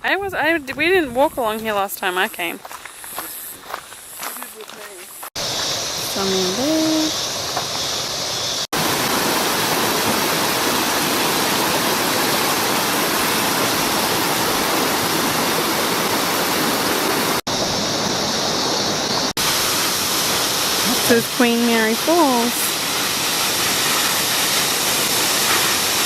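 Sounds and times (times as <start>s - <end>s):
waterfall rushing: 8.8s - 26.0s.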